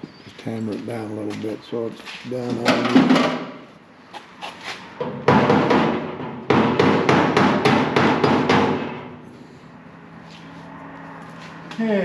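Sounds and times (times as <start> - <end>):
hammer blows on sheet metal: 5.2 - 9.2.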